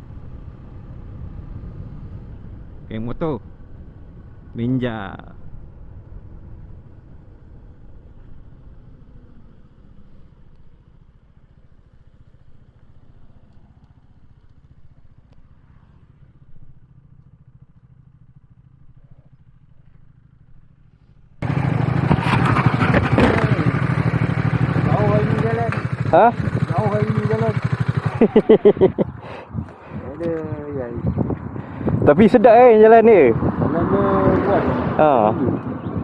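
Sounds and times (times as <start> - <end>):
motorcycle engine running: 5.4 - 36.0
wind rush on microphone: 21.5 - 36.0.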